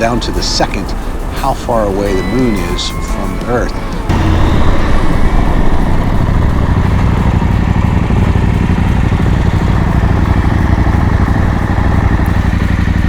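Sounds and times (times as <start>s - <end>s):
motorcycle engine running: 3.6s - 13.0s.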